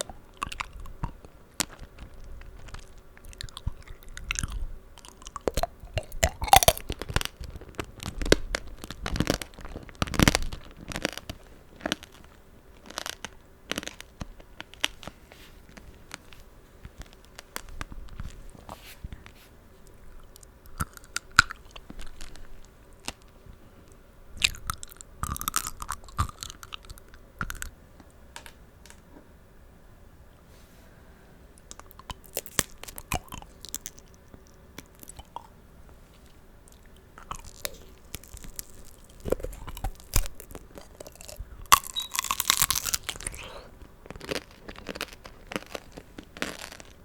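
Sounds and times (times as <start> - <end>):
chewing crunchy candy: 0.0 - 16.4, 20.2 - 23.4, 24.4 - 27.8, 31.6 - 35.6, 36.6 - 47.0.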